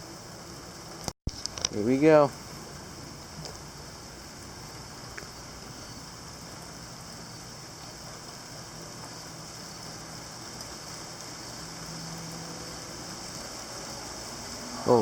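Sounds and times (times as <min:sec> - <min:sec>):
heavy rain pouring: 0:00.4 - 0:15.0.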